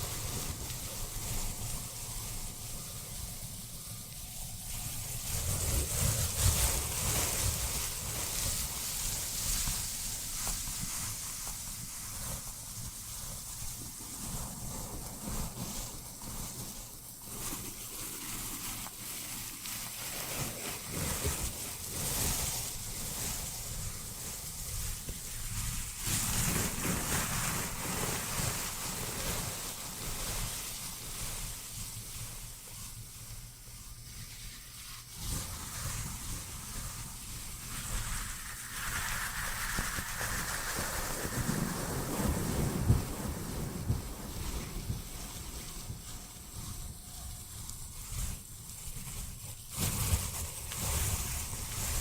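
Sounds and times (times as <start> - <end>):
rushing wind and water: 37.8 - 46.0.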